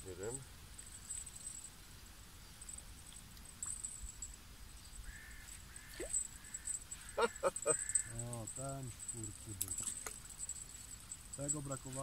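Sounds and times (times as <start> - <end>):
faint bird calls: 4.7 - 8.6.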